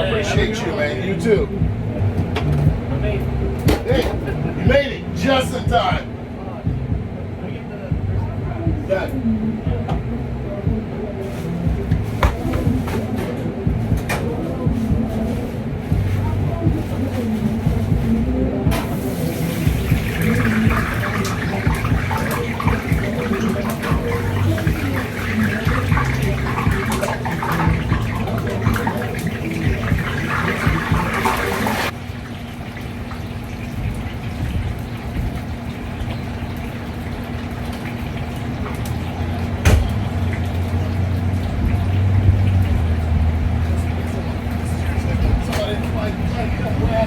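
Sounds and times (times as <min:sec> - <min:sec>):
steady low hum: 0:00.0 - 0:47.0
tap water running into sink: 0:18.7 - 0:46.1.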